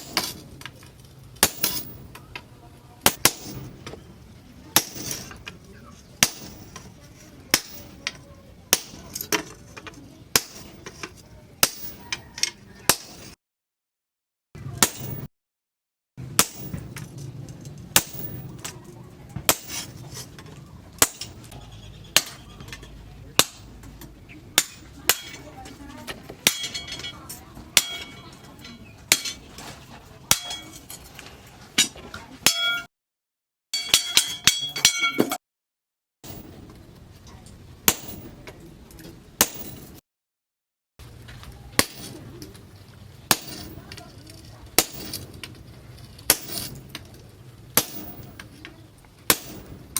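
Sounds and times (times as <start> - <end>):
hammer striking steel: 1.4 - 2.0, 3.0 - 3.8, 4.8 - 5.4, 6.2 - 6.9, 7.5 - 9.5, 10.3 - 12.2, 12.9 - 13.4, 14.7 - 15.3, 16.2 - 17.1, 18.0 - 18.7, 19.5 - 20.0, 21.0 - 21.5, 22.2 - 22.4, 23.4 - 23.8, 24.6 - 25.6, 26.4 - 29.5, 30.3 - 31.0, 31.8 - 32.9, 33.8 - 35.4, 37.9 - 38.3, 39.4 - 40.0, 41.8 - 42.2, 43.3 - 43.8, 44.8 - 45.3, 46.3 - 46.8, 47.8 - 48.4, 49.3 - 49.8.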